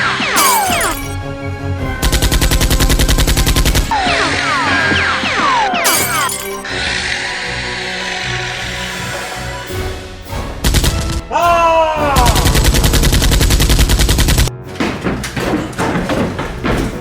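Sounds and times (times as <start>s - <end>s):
rapid automatic gunfire: 2.0s - 3.9s, 12.4s - 14.5s.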